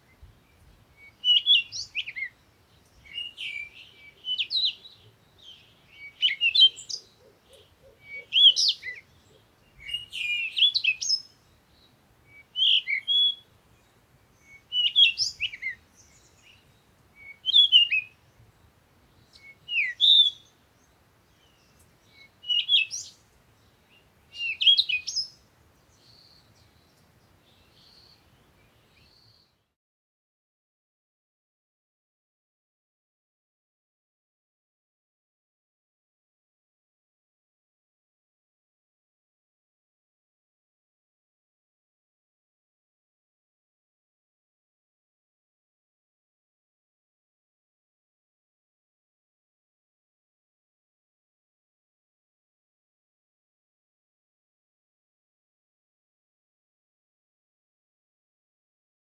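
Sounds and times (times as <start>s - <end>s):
songbird singing warbled phrases: 0.0s - 29.6s.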